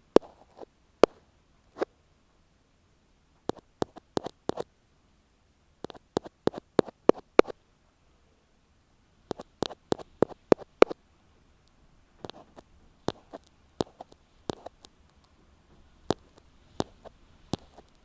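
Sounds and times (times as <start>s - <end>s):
ear pick tapping on microphone: 0.1s - 1.2s, 3.5s - 4.6s, 5.8s - 7.6s, 9.3s - 11.0s, 12.2s - 14.9s, 16.1s - 18.0s
light scratching: 0.1s - 1.9s, 3.5s - 4.7s, 5.8s - 7.6s, 9.3s - 11.0s, 12.2s - 18.0s.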